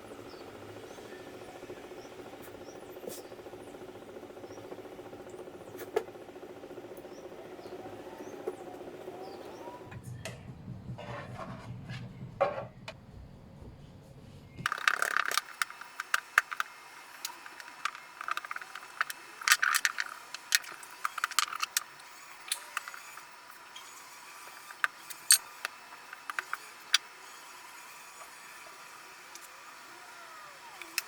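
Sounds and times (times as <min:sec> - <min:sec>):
kitchen items clicking and scraping: 0:14.7 - 0:23.0.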